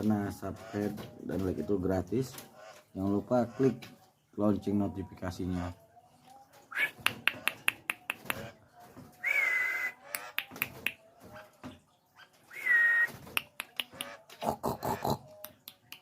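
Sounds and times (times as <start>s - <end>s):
myna clicking: 6.9s - 8.5s, 10.1s - 11.1s, 13.2s - 14.6s
myna whistled notes: 9.2s - 10.1s, 12.5s - 13.2s.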